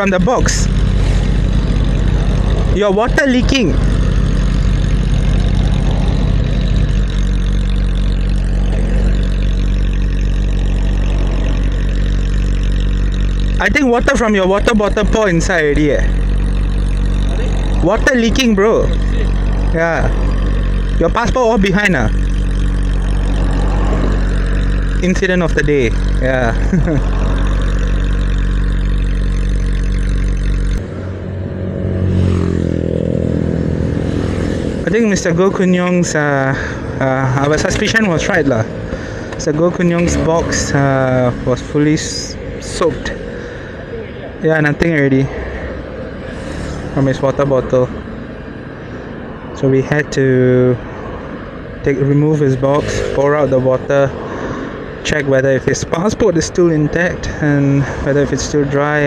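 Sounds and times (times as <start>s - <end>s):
motorcycle engine idling: 0.0s - 31.5s, 32.1s - 47.2s.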